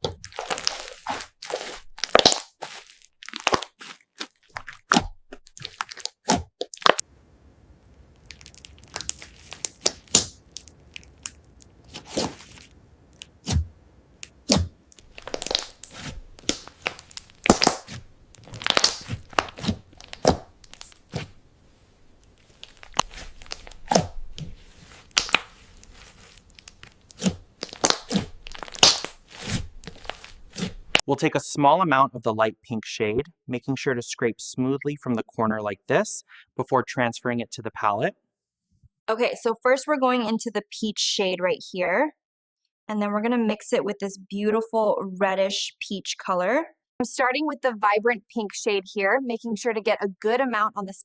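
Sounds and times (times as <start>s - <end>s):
slime crunchy pops and crackles: 0.0s - 7.0s, 8.0s - 12.6s, 14.2s - 21.4s, 22.2s - 31.1s.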